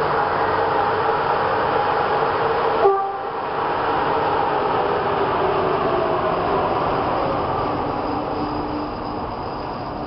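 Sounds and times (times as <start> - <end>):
electric locomotive humming: 0.0 - 10.0
train coaches rolling over rails: 3.5 - 10.0.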